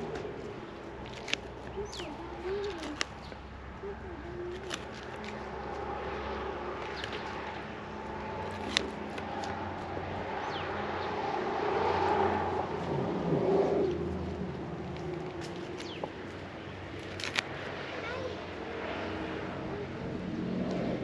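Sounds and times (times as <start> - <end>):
engine-like hum: 0.0 - 21.0
low wavering bird calls: 1.6 - 5.3.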